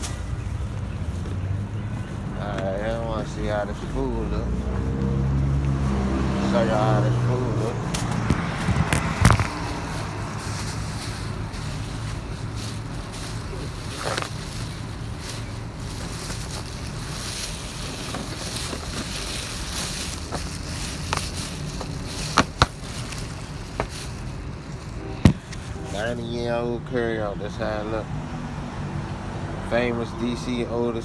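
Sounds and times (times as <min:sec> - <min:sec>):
food container rustling: 0:00.0 - 0:26.3.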